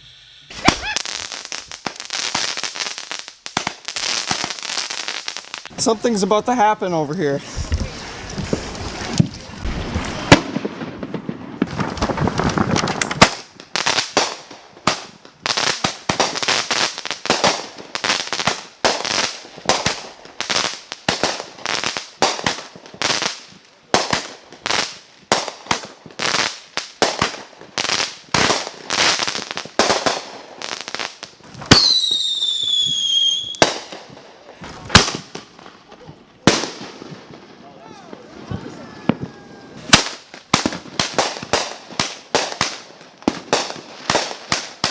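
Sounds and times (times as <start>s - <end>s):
whistling firework: 0.0s - 3.0s, 7.5s - 15.1s, 31.4s - 44.9s
firework hissing: 0.0s - 6.5s, 7.2s - 22.6s
firework bangs: 0.5s - 6.7s, 7.4s - 44.9s.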